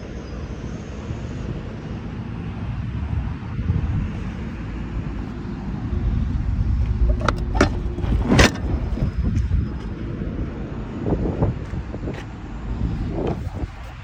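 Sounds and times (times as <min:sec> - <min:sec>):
truck diesel engine rumbling: 0:03.8 - 0:13.9.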